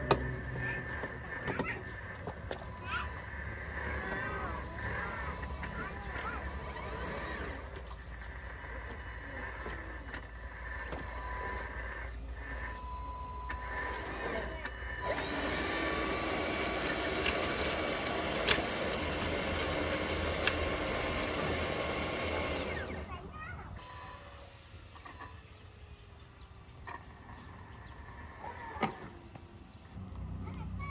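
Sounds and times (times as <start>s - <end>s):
small electric motors whining: 0.0s - 30.2s
sharp clicks: 15.0s - 23.1s.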